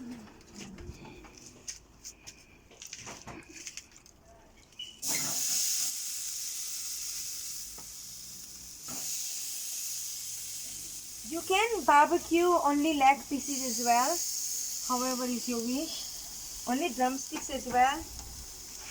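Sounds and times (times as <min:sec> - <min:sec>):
chicken sizzling on grill: 0:04.8 - 0:18.9.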